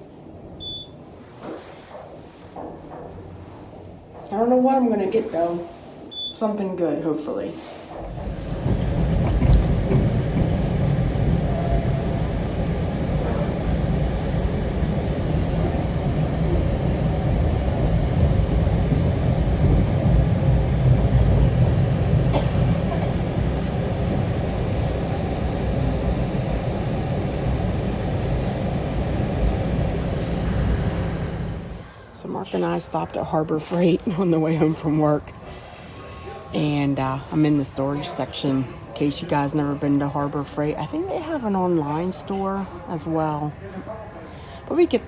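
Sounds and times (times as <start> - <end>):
vehicle rumbling in motion: 8.0 - 31.9.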